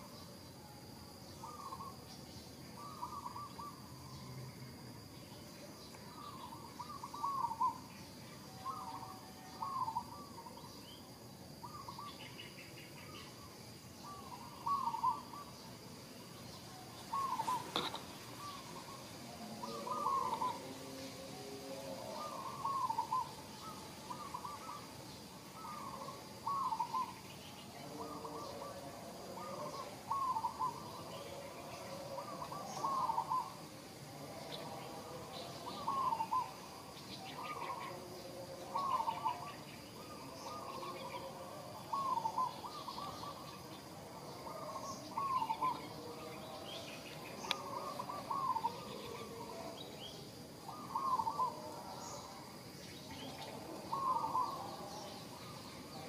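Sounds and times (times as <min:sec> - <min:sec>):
bird calling hooked notes: 0:17.1 - 0:18.9.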